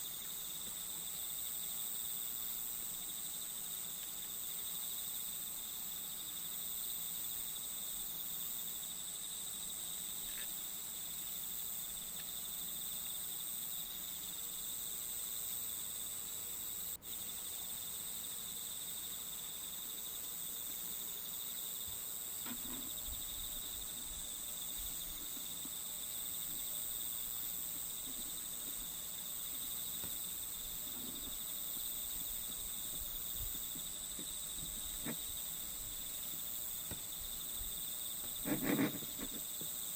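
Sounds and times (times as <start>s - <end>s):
insects shrilling: 22.4s - 39.9s.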